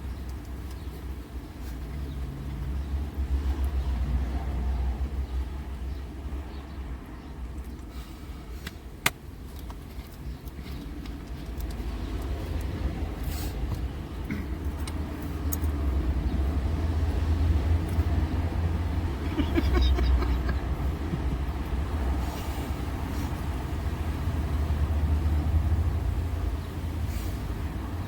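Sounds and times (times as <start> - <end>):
steady low rumble: 0.0 - 26.9.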